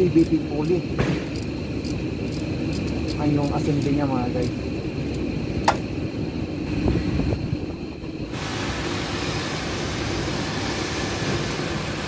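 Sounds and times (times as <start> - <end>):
even hiss: 6.6 - 12.0.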